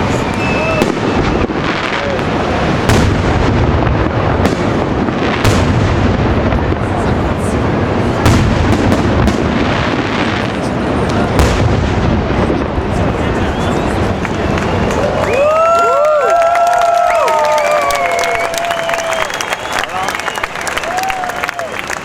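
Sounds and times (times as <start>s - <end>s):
sharp firework bangs: 0.0s - 15.2s.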